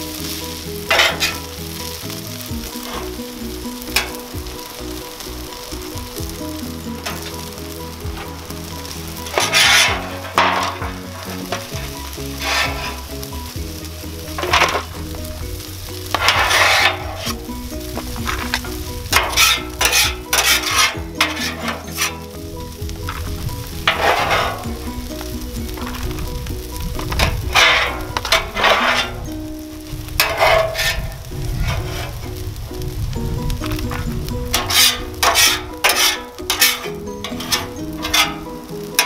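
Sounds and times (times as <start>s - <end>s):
metal spatulas scraping griddle: 0.0s - 26.2s, 27.0s - 32.4s, 33.7s - 39.0s
background music: 0.0s - 39.0s
food sizzling: 0.0s - 39.0s.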